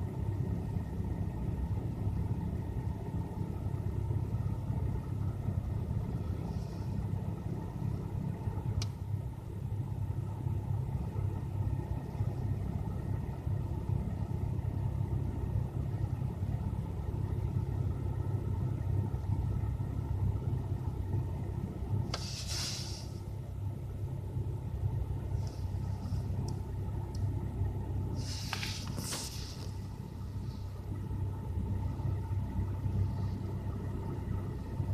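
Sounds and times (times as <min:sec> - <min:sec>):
car engine idling: 0:00.0 - 0:34.9
brief hiss: 0:22.1 - 0:23.2, 0:28.2 - 0:29.8.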